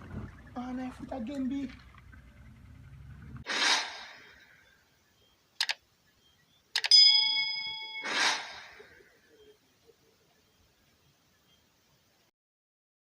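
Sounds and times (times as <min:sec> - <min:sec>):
whoosh sound effect: 0:03.4 - 0:04.4, 0:08.0 - 0:09.0
clicks: 0:05.6 - 0:05.8, 0:06.7 - 0:07.0
bell ding: 0:06.9 - 0:08.2.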